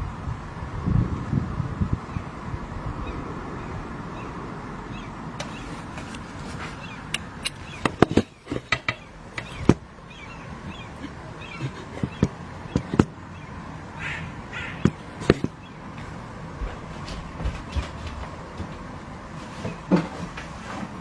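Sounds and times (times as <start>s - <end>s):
steady outdoor noise: 0.0s - 21.0s
faint bird calls: 2.1s - 15.9s
sharp clicks and knocks: 7.1s - 9.9s, 11.0s - 13.2s, 14.8s - 15.6s.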